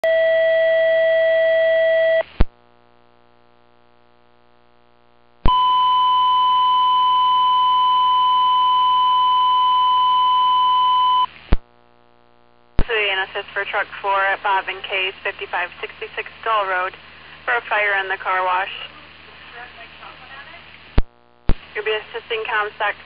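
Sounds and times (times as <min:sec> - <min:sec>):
radio alert tones: 0:12.8 - 0:18.9
radio squelch click: 0:20.7 - 0:22.2.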